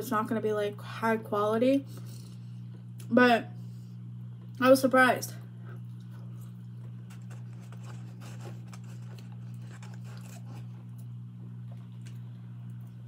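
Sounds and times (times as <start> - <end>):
person chewing fries: 5.8 - 13.0.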